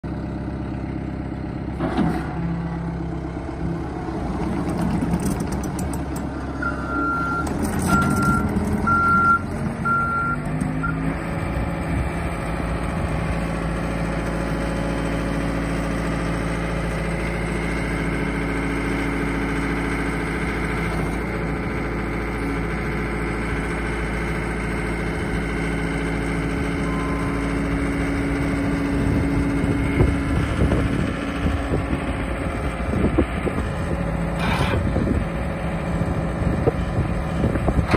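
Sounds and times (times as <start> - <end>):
skid steer engine running: 0.0 - 37.9
reversing alarm beeping: 6.6 - 11.0, 26.8 - 27.5.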